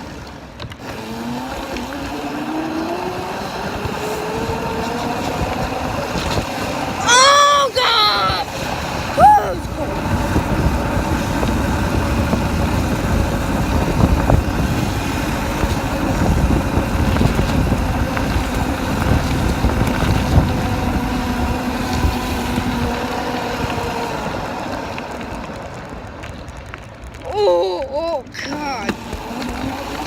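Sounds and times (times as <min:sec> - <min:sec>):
wind buffeting microphone: 0:08.2 - 0:24.5.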